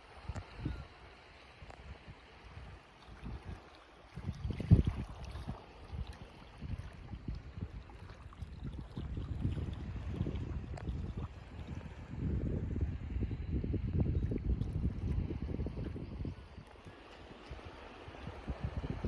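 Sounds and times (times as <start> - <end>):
wind buffeting microphone: 1.6 - 19.0
small waves washing on sand: 15.1 - 19.0.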